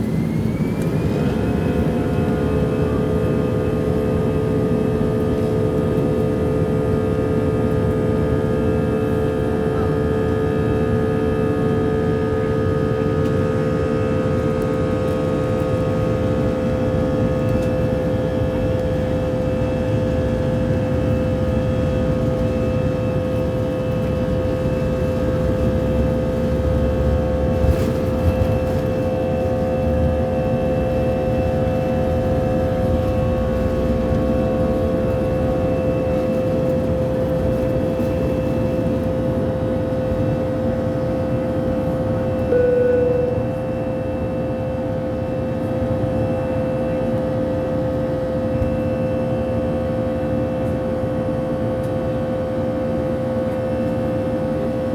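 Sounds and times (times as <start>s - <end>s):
jet engines rumbling in cabin: 0.0s - 54.9s
short tone: 42.3s - 44.4s.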